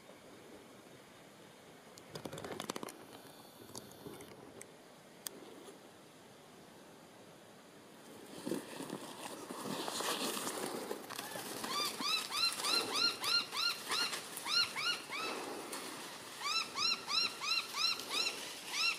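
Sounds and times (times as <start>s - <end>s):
rustling: 8.0s - 16.8s
bird calling: 11.2s - 18.9s.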